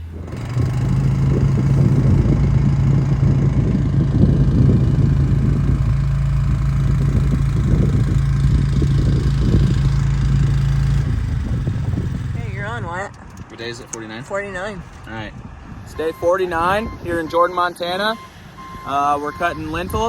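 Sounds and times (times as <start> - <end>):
low rumble: 0.0 - 13.6
engine running steadily: 0.0 - 20.0.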